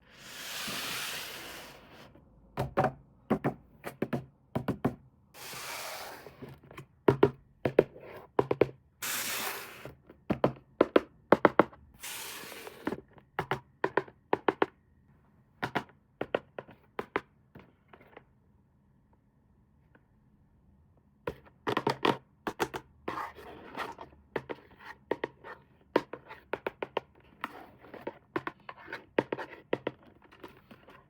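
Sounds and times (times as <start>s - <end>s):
short hissing scrapes: 0.1s - 2.1s, 5.4s - 6.4s, 9.0s - 9.9s, 12.0s - 12.9s.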